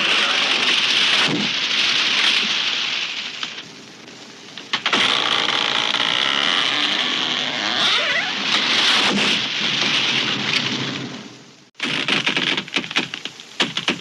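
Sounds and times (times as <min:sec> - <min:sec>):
tree crashing down: 0:00.0 - 0:03.8, 0:04.5 - 0:14.0
wood creaking: 0:04.5 - 0:10.8.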